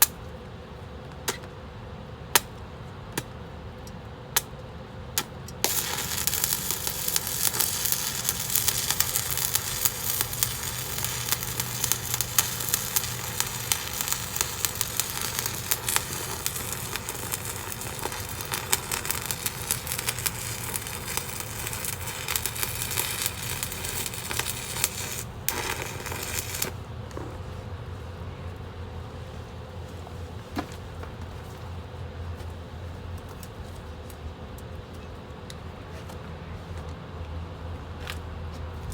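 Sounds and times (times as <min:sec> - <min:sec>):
arc welding crackling: 0:05.2 - 0:27.2.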